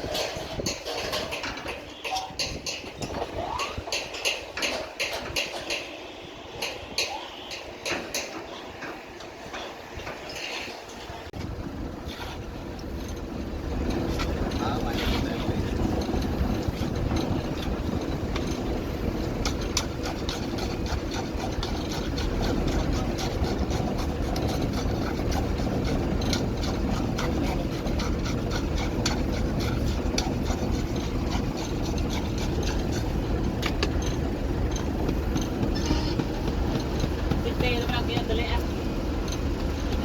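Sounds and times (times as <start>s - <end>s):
engine running: 11.4s - 40.0s.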